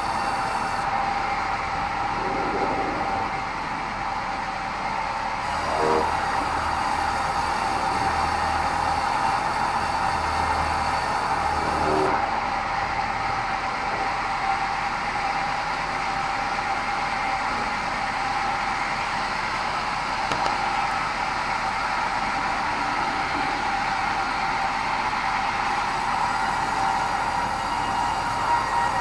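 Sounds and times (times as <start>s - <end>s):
band saw running: 0.0s - 1.3s, 5.1s - 12.8s, 13.4s - 29.0s.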